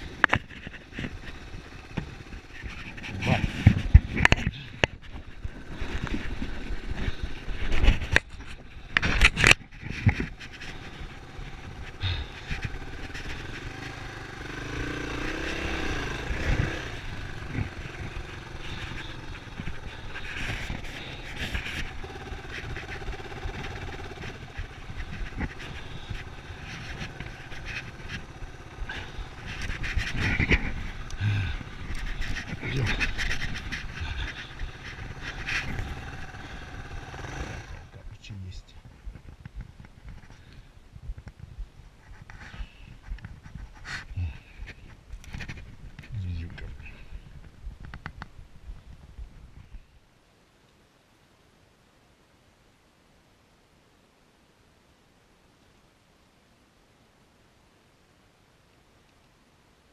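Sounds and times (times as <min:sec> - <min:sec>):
motorcycle engine revving: 0:00.0 - 0:38.1
wind noise: 0:15.4 - 0:36.3, 0:38.8 - 0:50.0.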